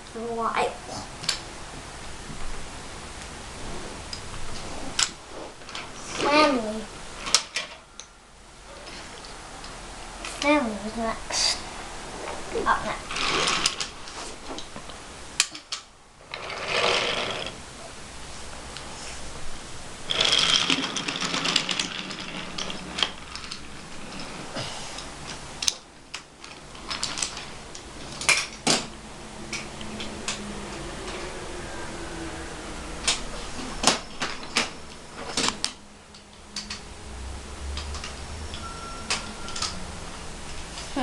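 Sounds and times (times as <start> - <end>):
wooden toy trains rattling: 4.6 - 7.8, 12.7 - 14.6, 15.4 - 17.6, 20.1 - 28.9
wooden toys clicking and clacking: 7.2 - 8.1, 12.8 - 14.8, 15.4 - 17.6, 20.1 - 28.9, 33.0 - 36.9, 37.7 - 39.8.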